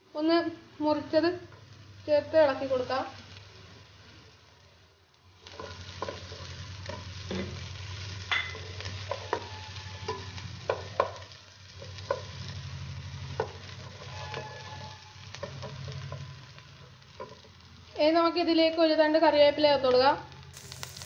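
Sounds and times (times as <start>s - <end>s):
vegetables sizzling in oil: 0.0s - 21.0s
spatula scraping a pan: 8.3s - 11.0s, 13.4s - 16.3s.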